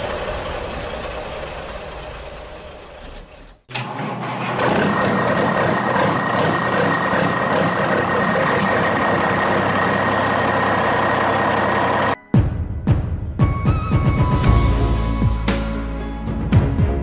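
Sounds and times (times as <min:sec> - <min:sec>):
truck engine running with whine: 0:00.0 - 0:12.2.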